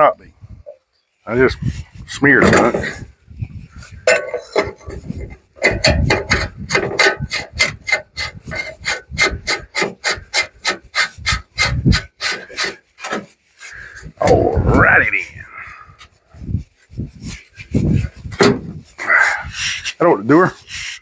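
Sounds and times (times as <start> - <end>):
rapid rubbing strokes: 7.3 - 15.2.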